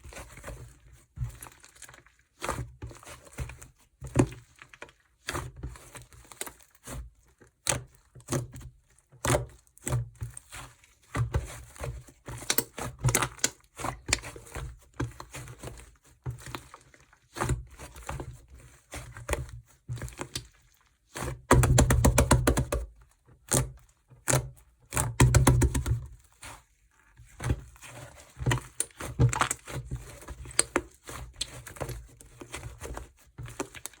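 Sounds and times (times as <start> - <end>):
slime being squished by hand: 20.0 - 34.0.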